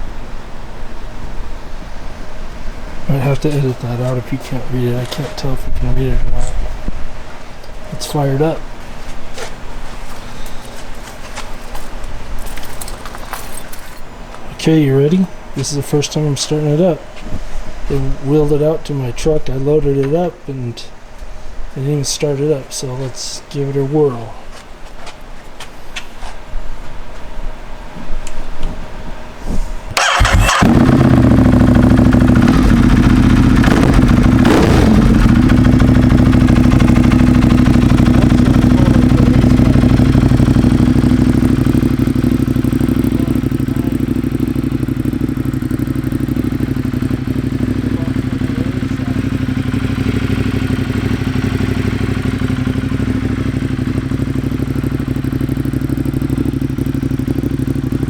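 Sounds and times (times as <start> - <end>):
motorcycle engine starting and idling: 3.0 - 6.5, 7.6 - 15.2, 29.9 - 58.0.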